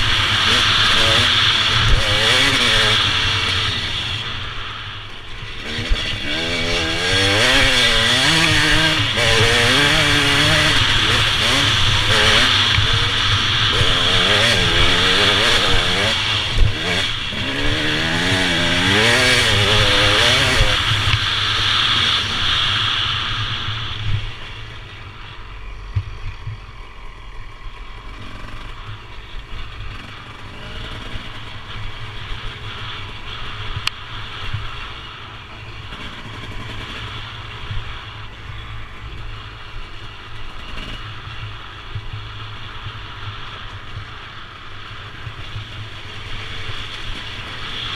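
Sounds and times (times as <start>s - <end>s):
motorbike engine revving: 0.0s - 24.6s
rush of wind noise: 0.0s - 47.9s.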